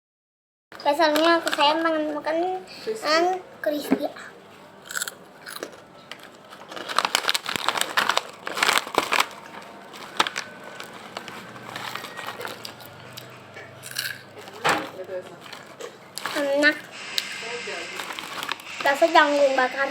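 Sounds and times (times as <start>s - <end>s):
snack packet crinkling: 1.0s - 2.2s, 4.9s - 19.9s
crispy snack crunching: 4.8s - 17.4s, 18.0s - 19.1s.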